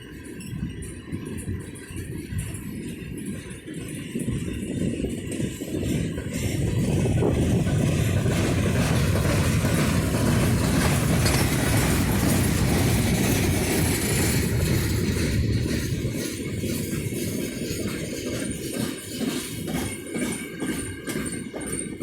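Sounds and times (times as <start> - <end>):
train wheels rumbling on rail: 0.0 - 22.0
clicking over rail joints: 4.8 - 22.0.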